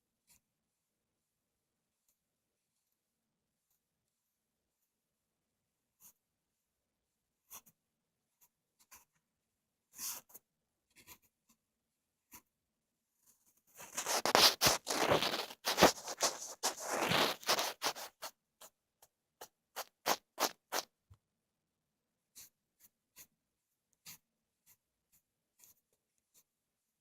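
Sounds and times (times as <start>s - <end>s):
ear-cleaning tool scraping: 13.8s - 18.3s, 19.8s - 20.8s.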